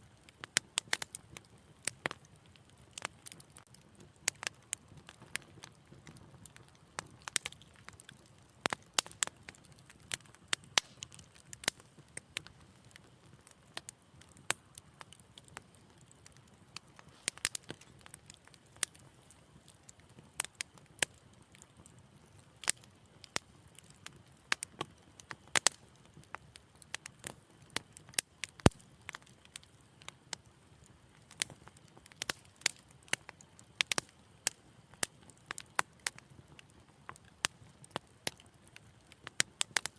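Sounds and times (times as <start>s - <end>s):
wood fire crackling and popping: 0.0s - 39.9s
low rush of flames: 14.4s - 20.4s.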